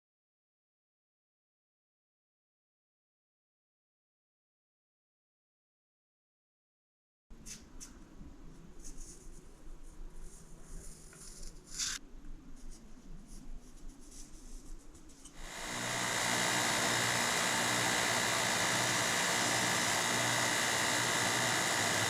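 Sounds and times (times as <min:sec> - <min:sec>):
shop machine motor running: 0:15.4 - 0:22.0.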